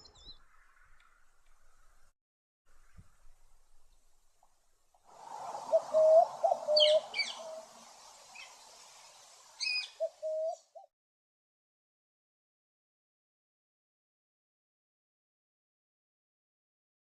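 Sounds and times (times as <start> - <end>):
low hooting bird calls: 5.5 - 10.9
sharp high bird calls: 5.6 - 10.7.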